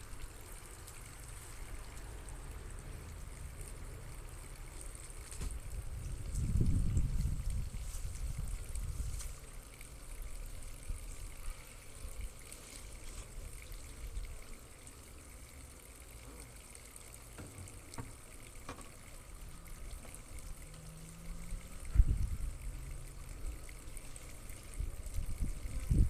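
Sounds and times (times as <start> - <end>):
wind rumble on microphone: 5.4 - 9.4, 21.4 - 23.7, 24.6 - 26.0.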